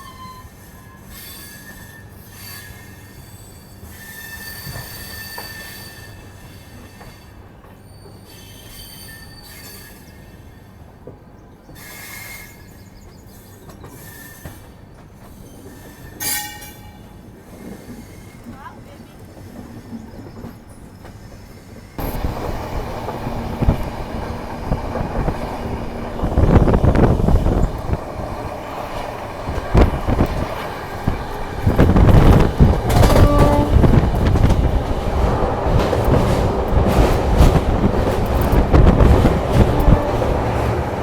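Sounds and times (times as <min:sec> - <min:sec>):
train wheels clattering on rails: 0:01.0 - 0:41.0
train rumble: 0:09.3 - 0:41.0.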